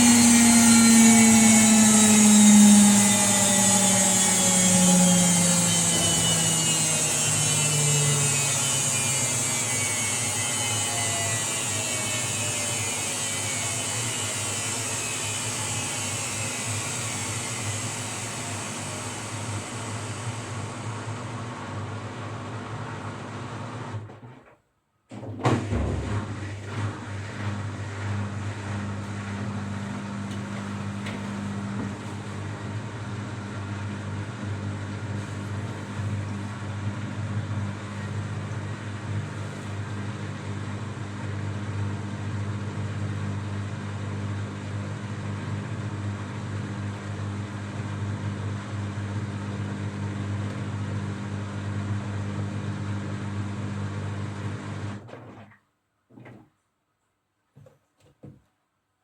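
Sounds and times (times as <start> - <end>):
washing machine running: 0.0 - 56.4
knock: 57.6 - 58.5.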